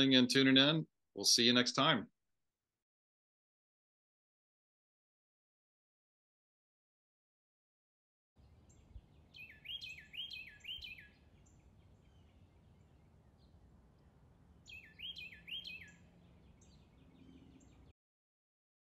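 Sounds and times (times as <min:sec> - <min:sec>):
bird calling faintly: 0:08.4 - 0:17.9
outdoor background hiss: 0:08.4 - 0:17.9.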